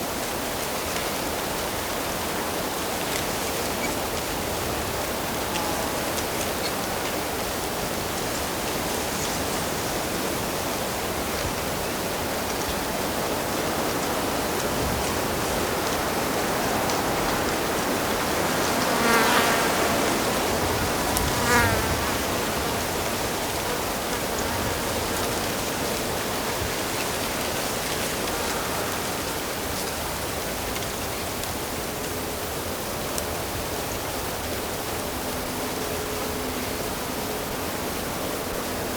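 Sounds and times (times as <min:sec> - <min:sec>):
insect buzzing: 0:18.4 - 0:25.9.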